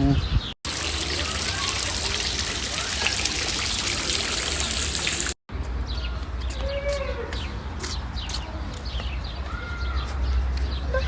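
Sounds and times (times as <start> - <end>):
birds chirping and calling: 0.0 - 5.3
water trickling: 0.6 - 5.4.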